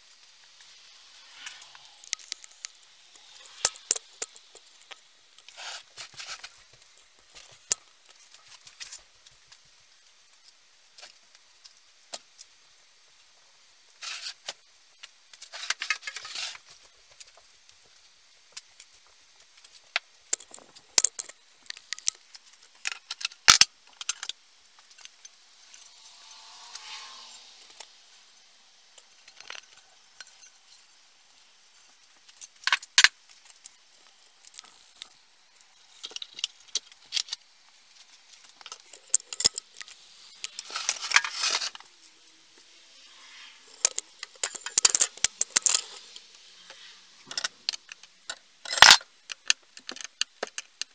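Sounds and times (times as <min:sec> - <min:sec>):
soft hiss: 0:00.0 - 0:50.9
metal tools clinking and rattling: 0:20.3 - 0:22.0, 0:38.5 - 0:39.9, 0:47.3 - 0:50.7.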